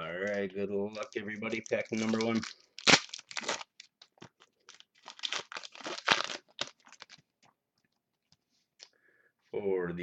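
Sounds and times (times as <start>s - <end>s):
foil wrapper tearing and crinkling: 0.2s - 7.2s.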